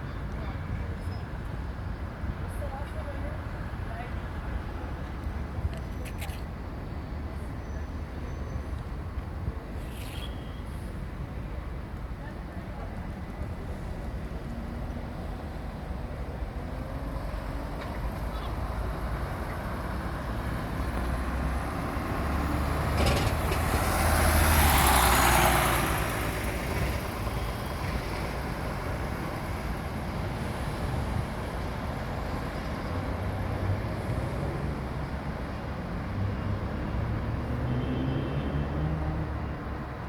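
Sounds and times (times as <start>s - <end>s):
bus diesel engine: 10.6s - 40.0s.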